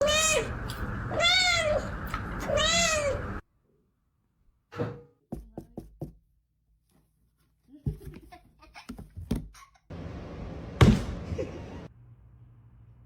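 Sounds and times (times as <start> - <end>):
cat meowing: 0.0 - 0.5, 1.1 - 3.4.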